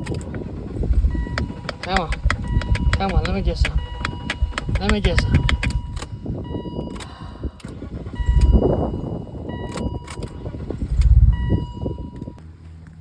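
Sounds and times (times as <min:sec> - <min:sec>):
engine cranking without starting: 0:00.0 - 0:12.4.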